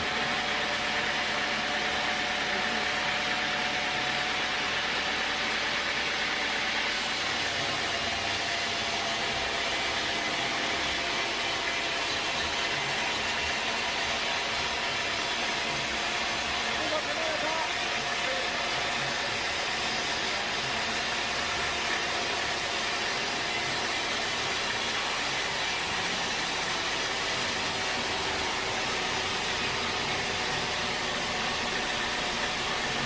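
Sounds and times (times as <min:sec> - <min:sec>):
sawmill machinery hum: 0:00.0 - 0:33.0.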